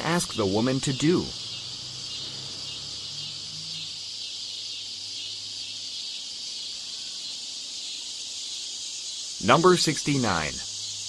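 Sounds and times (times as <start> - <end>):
faint low hum: 0.0 - 7.4
high-pitched hiss: 0.0 - 11.0.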